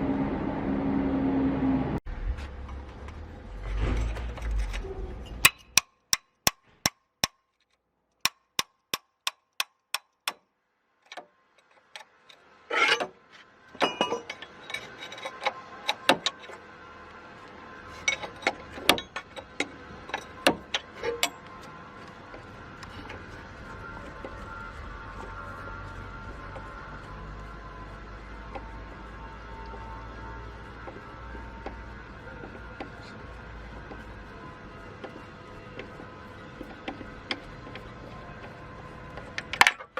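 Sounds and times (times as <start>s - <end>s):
hammer striking metal: 5.3s - 7.4s, 13.8s - 14.5s
metal knocks and clinks: 13.8s - 16.5s.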